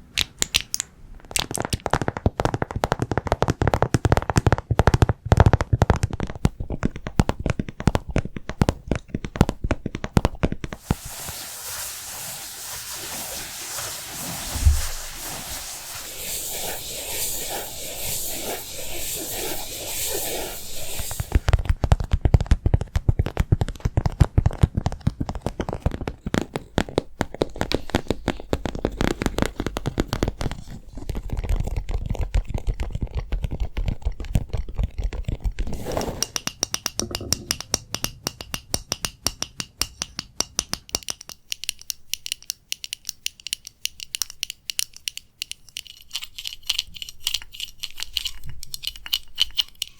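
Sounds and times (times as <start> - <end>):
fast tapping and scratching: 1.3 - 11.9, 12.9 - 49.9
hissing scratchy noise: 10.7 - 21.5
ringing tapping on hard surface: 36.3 - 41.4.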